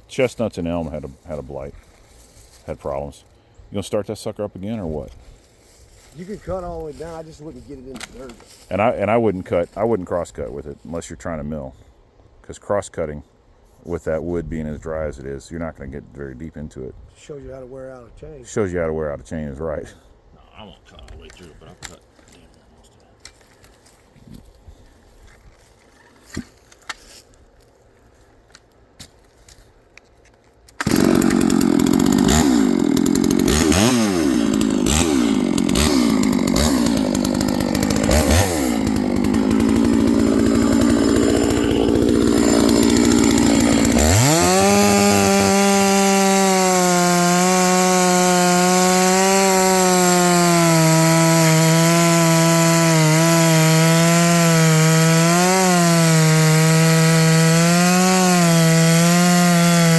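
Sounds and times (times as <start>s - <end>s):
chainsaw cutting wood: 4.6s - 10.6s, 30.7s - 59.9s
chainsaw revving: 6.9s - 9.9s, 30.8s - 59.9s.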